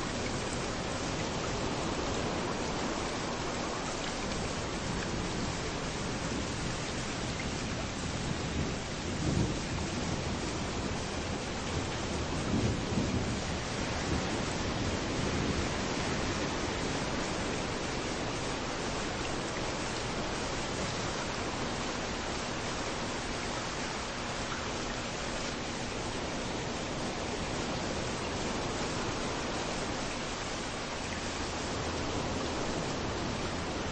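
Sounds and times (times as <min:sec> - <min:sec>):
steady rain: 0:00.0 - 0:33.9
waves rolling on a beach: 0:00.0 - 0:33.9.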